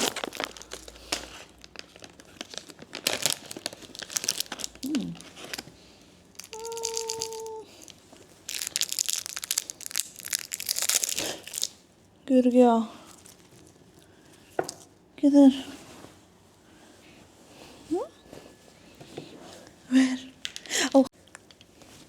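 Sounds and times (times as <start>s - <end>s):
plastic wrapper crinkling: 0.0s - 5.7s, 6.3s - 11.8s, 13.0s - 14.0s.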